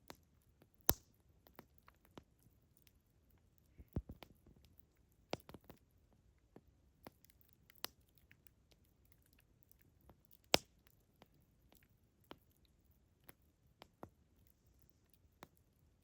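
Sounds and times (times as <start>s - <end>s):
campfire crackling and popping: 0.8s - 2.3s, 5.3s - 5.8s, 10.1s - 10.9s.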